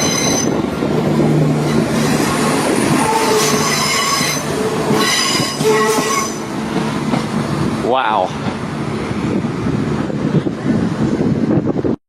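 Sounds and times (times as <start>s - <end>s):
train wheels squealing on rails: 0.0s - 0.6s, 1.7s - 6.6s.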